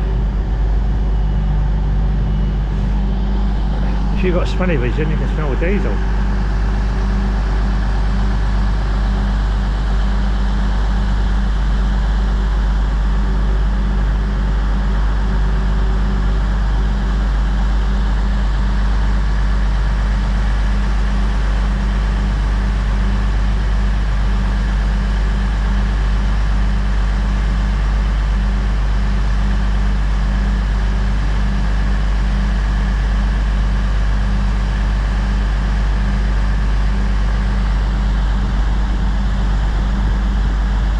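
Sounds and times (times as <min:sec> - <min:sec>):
train diesel engines droning: 0:00.0 - 0:06.9.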